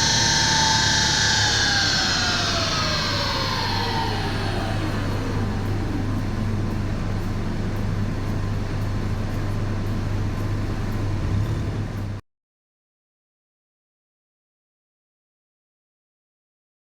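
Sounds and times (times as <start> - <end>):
car engine running down: 0.0 - 12.2
low hum and rumble: 0.0 - 12.2.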